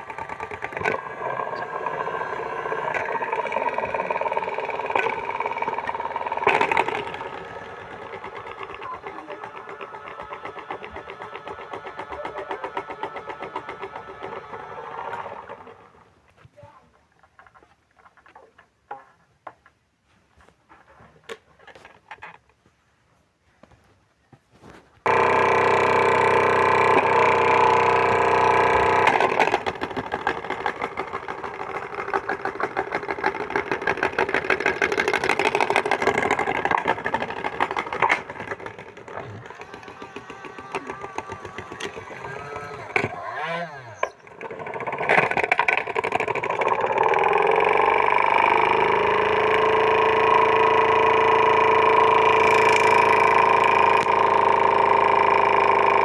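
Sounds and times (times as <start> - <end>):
washing machine running: 0.0 - 16.0, 25.1 - 43.0, 45.8 - 56.0.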